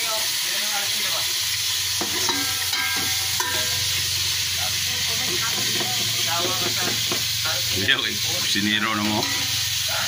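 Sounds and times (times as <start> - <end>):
oil sizzling in a pot: 0.0 - 10.0
metal utensil stirring: 2.0 - 7.6, 8.4 - 10.0.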